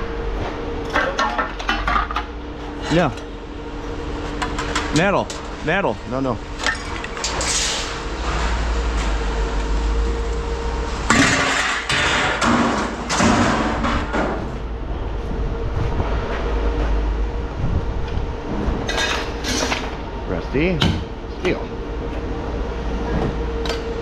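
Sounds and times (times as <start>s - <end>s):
low machine hum: 0.0s - 24.0s
scrap metal clattering and thudding: 0.4s - 2.9s, 11.0s - 14.7s.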